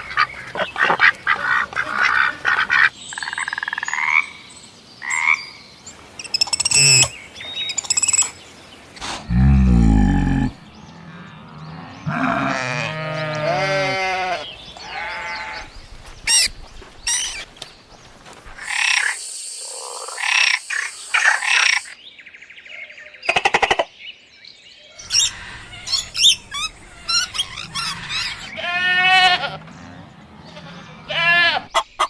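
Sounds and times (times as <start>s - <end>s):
drawn-out pitched animal call: 6.5s - 7.1s, 9.2s - 15.7s, 25.0s - 31.9s
harsh animal call: 9.0s - 11.4s, 25.0s - 31.8s.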